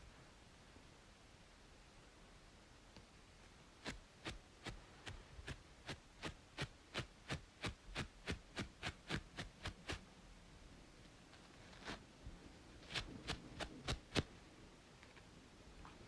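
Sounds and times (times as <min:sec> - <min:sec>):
faint white-noise hiss: 0:00.0 - 0:16.0
scratching on scalp: 0:03.8 - 0:10.0, 0:11.4 - 0:12.0, 0:12.8 - 0:14.3.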